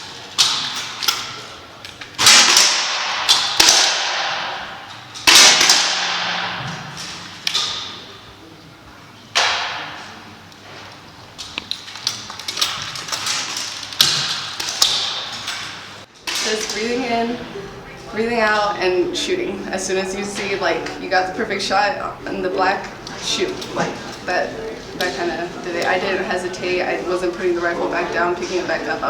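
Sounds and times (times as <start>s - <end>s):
air rifle shots echoing: 2.2s - 8.2s.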